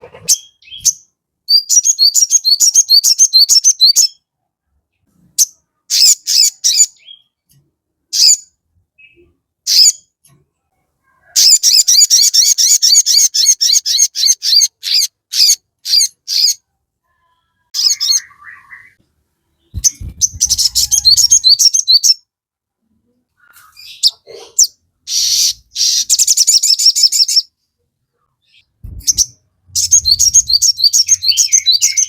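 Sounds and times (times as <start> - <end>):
bird chirping: 0.0 - 4.3, 4.9 - 10.2, 11.1 - 22.3, 23.4 - 32.0.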